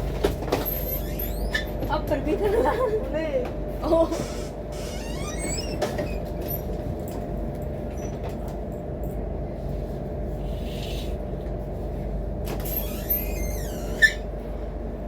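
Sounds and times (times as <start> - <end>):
low rumble of moving train: 0.0 - 15.0
falling squeal: 12.7 - 14.2.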